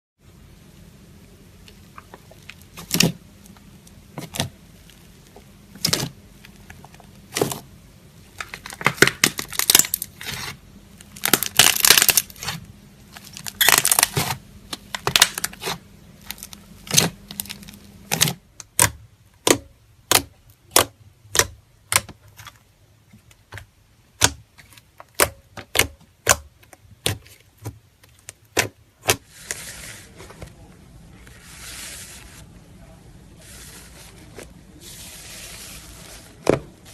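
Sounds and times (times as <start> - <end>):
slime crackling: 1.6 - 22.6.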